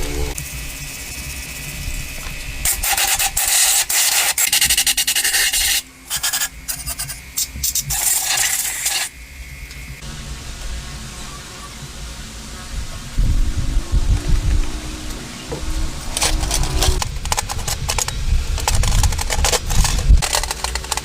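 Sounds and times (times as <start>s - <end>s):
harsh rasping scrapes: 14.4s - 21.0s.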